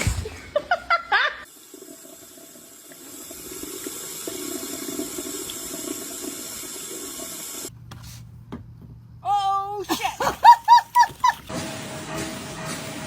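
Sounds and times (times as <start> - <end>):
tap water running into sink: 1.6 - 7.7, 10.2 - 11.5.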